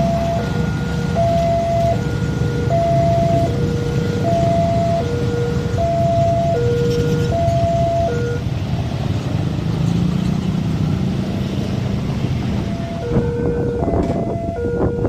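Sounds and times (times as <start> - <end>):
two-tone crossing alarm: 0.0 - 8.5, 12.6 - 15.0.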